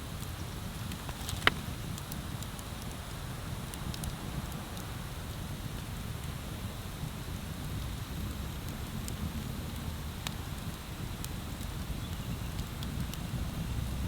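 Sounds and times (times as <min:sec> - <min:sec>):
bonfire burning with crackling pops: 0:00.0 - 0:14.0.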